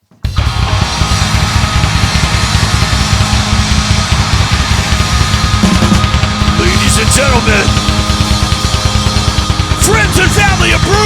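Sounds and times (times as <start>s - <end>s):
distorted electric guitar: 0.3s - 11.0s
drum and bass beat: 0.3s - 11.0s.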